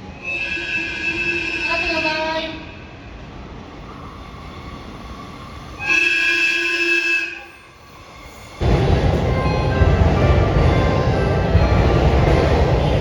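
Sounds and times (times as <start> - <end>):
train horn blast: 0.2 - 2.7, 5.8 - 7.6.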